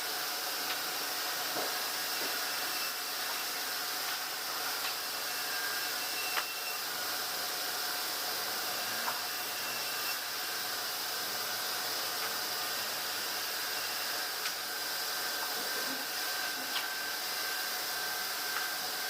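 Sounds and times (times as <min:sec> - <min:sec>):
sawmill machinery hiss: 0:00.0 - 0:19.0.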